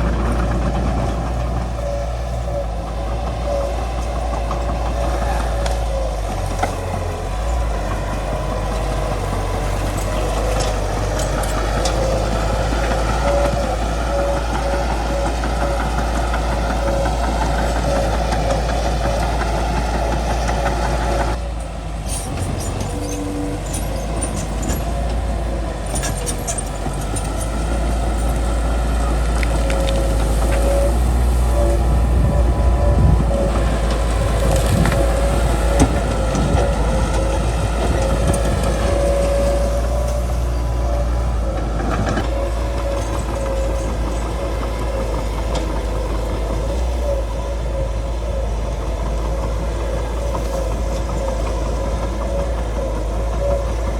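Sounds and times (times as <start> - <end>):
bulldozer diesel engine rattling: 0.0 - 53.9
branches cracking and snapping: 33.8 - 36.4.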